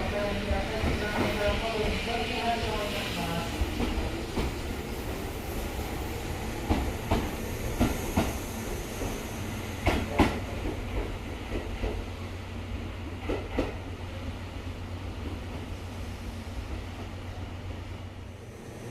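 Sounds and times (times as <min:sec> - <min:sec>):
train low rumble: 0:00.0 - 0:18.9
train wheels clacking over rail joints: 0:09.8 - 0:12.0.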